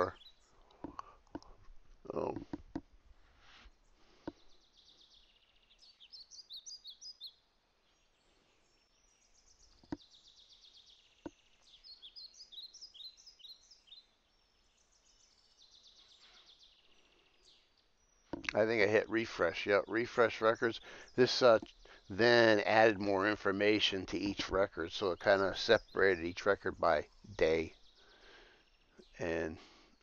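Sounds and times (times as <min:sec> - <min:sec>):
faint bird chirping: 0:00.0 - 0:02.7, 0:03.3 - 0:30.0.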